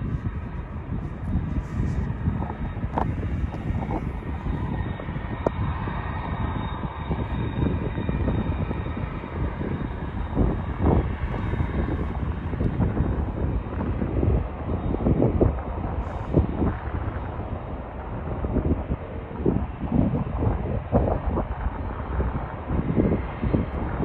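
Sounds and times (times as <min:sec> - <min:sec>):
jet engines whining: 0:00.0 - 0:24.0
wind buffeting microphone: 0:00.0 - 0:24.0.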